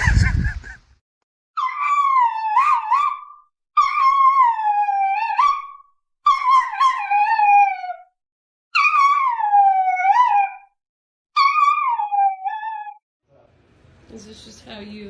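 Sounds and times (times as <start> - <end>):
dog howling: 1.6 - 8.1, 8.8 - 10.8, 11.4 - 13.0.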